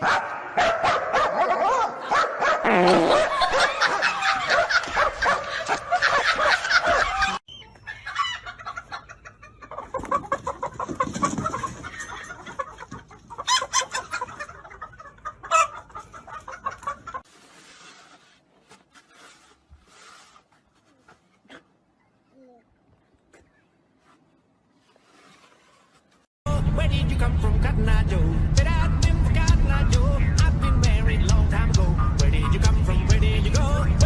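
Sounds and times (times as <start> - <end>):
chickens clucking: 3.6 - 17.3.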